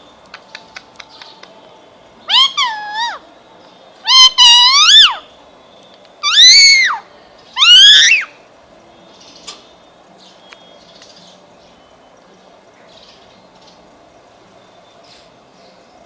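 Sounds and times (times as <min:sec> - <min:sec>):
parrot calling: 0:02.2 - 0:03.2, 0:04.0 - 0:05.3, 0:06.2 - 0:08.4.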